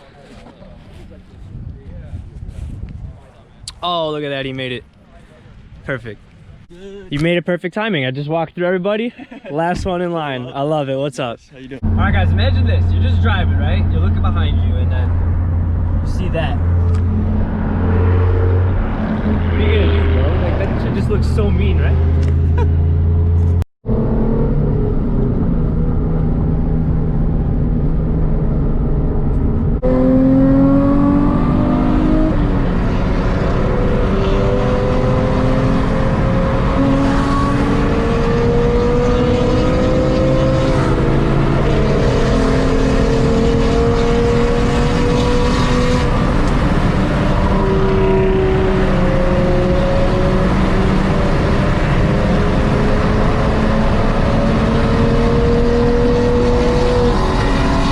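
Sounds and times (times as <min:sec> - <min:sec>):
road noise: 0:00.0 - 0:57.9
car engine revving: 0:11.7 - 0:57.9.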